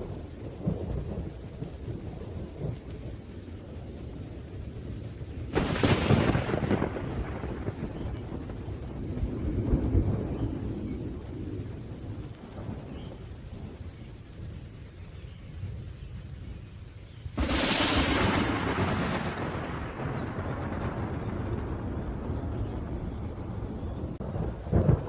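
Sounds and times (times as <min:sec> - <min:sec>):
low thunder rumbling: 0:00.0 - 0:25.0
rain: 0:00.0 - 0:25.0
sharp thunderclap: 0:05.5 - 0:13.7, 0:17.4 - 0:25.0.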